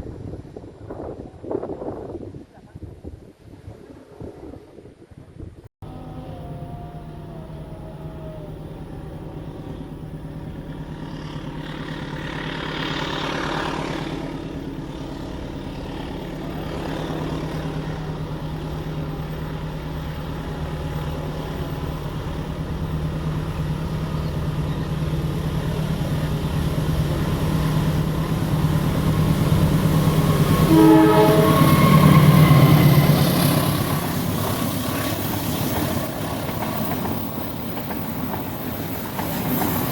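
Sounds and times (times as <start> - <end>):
diesel locomotive engine drone: 5.8 - 39.9
train horn: 29.1 - 33.8.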